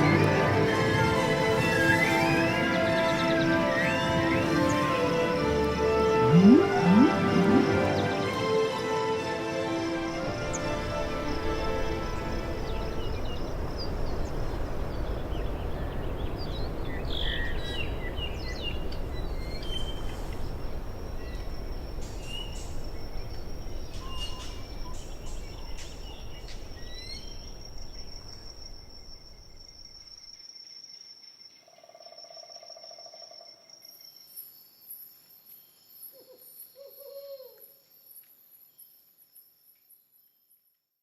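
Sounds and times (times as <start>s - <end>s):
high-pitched insect trill: 21.2s - 36.2s.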